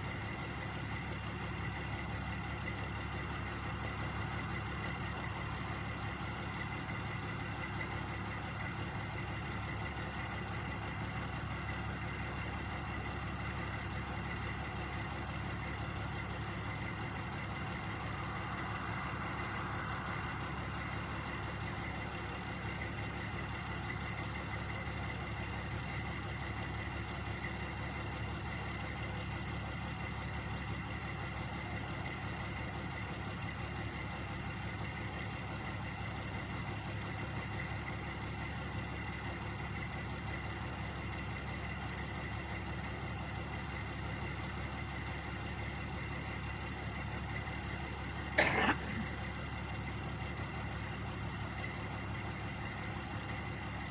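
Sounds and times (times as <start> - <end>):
truck engines idling: 0.0 - 53.9.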